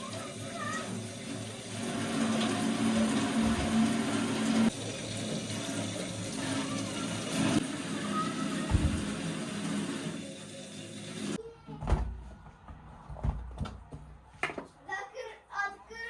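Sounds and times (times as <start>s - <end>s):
water running: 0.0s - 11.4s.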